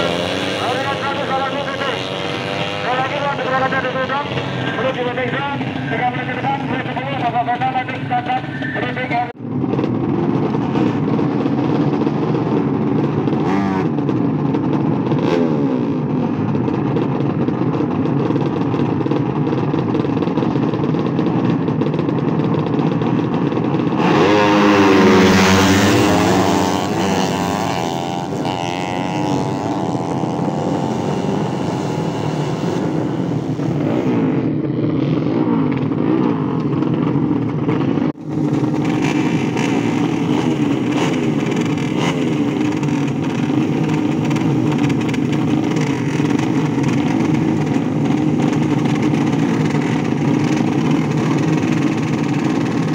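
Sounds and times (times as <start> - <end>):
motorcycle engine revving: 0.0 - 52.9
motorcycle engines running: 0.0 - 52.9.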